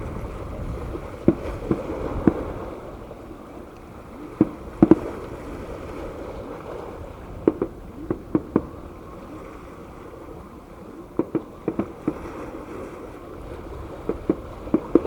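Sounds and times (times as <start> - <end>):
distant fireworks bangs: 0.0 - 2.8, 4.2 - 5.8, 7.3 - 9.4, 11.1 - 15.0.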